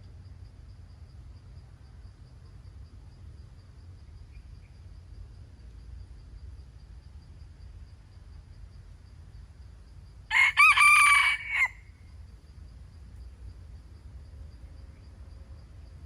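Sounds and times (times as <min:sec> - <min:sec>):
insects buzzing: 0:00.0 - 0:16.0
rooster crowing: 0:10.3 - 0:12.0.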